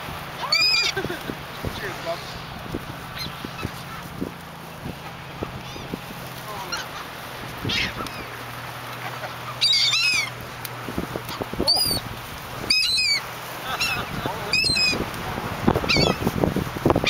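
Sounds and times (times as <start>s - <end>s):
gulls mewing calls: 0.0s - 17.0s.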